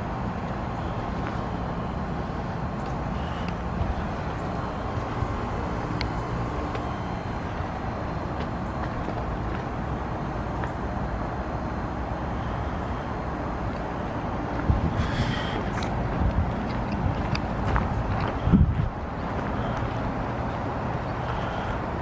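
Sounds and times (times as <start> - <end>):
heat pump rumbling hiss: 0.0 - 22.0.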